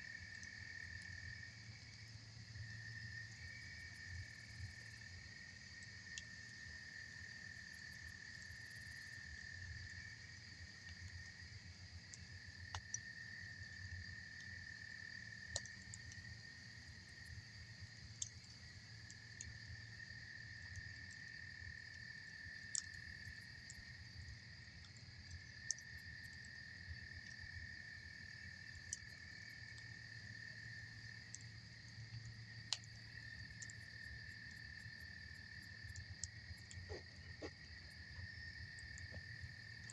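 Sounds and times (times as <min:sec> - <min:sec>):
insects trilling: 0:00.0 - 0:39.9
campfire wood popping: 0:31.2 - 0:39.9.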